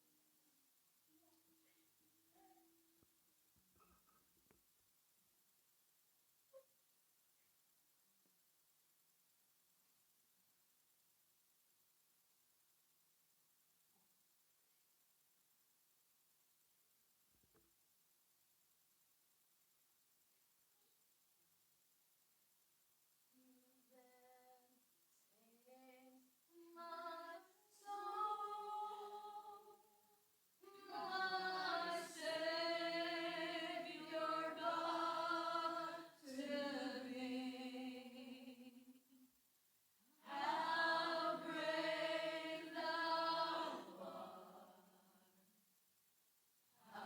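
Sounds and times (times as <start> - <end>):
women singing a worship song: 25.4 - 29.8, 30.6 - 39.0, 40.2 - 45.3, 46.8 - 47.0.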